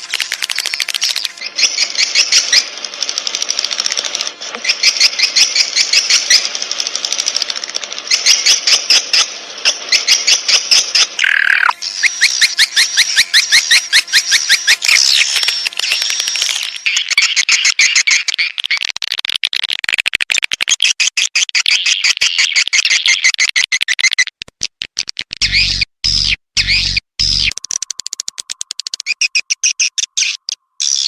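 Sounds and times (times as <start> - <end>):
swiftlet chirps and twitters: 0.0 - 2.7, 9.9 - 18.6
quick clicks: 0.0 - 4.9, 11.2 - 17.2.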